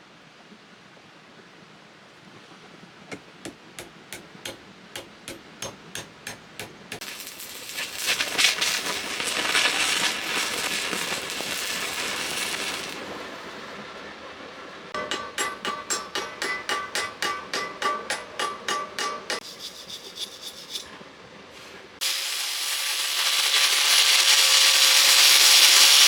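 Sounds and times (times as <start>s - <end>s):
hammer tapping on steel: 3.1s - 7.1s, 15.0s - 19.4s
loud crackling hiss: 6.9s - 13.7s, 22.0s - 26.0s.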